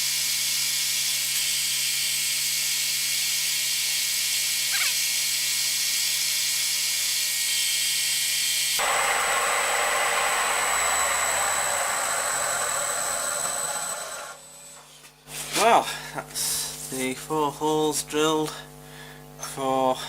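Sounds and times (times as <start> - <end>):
milling machine hissing: 8.8 - 14.8.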